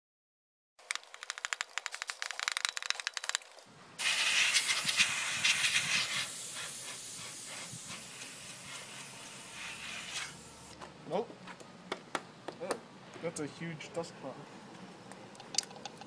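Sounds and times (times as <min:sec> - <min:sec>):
compressed air hissing: 0:04.0 - 0:10.7.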